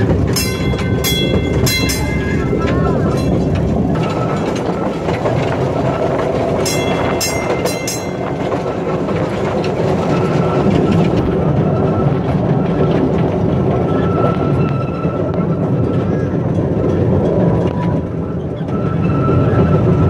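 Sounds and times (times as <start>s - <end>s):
wheels rumbling on rail: 0.0s - 20.0s
high ringing metallic sounds: 0.3s - 4.6s, 6.6s - 8.7s.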